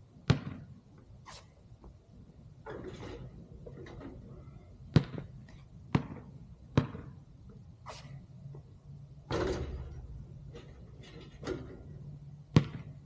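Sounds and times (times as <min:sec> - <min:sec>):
basketball bouncing: 0:00.2 - 0:00.7, 0:04.9 - 0:07.2, 0:12.5 - 0:13.0.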